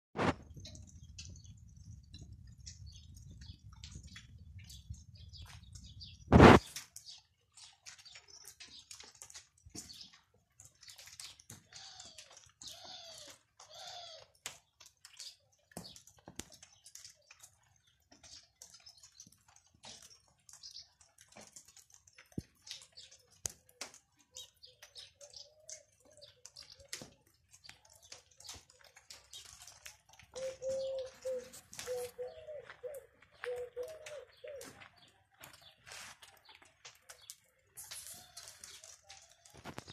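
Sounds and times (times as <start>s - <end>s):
birds chirping: 0.2s - 39.9s
raindrops dripping: 0.2s - 39.9s
dove cooing: 30.3s - 34.9s.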